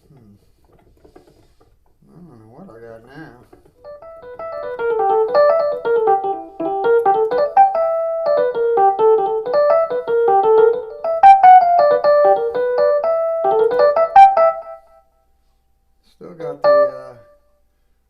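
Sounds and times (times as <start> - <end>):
electric piano melody: 3.8 - 15.0, 16.4 - 17.3.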